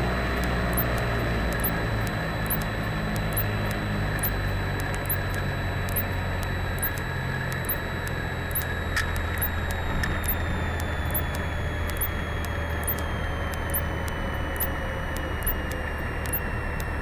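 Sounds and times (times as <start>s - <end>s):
aircraft engine droning: 0.0s - 17.0s
faint high chirp: 0.7s - 2.7s, 3.3s - 16.7s.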